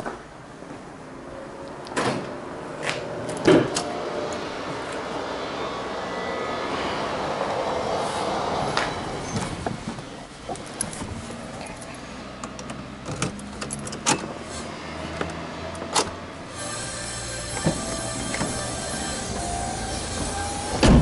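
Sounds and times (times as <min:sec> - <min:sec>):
car door shutting thump: 0:20.1 - 0:21.0.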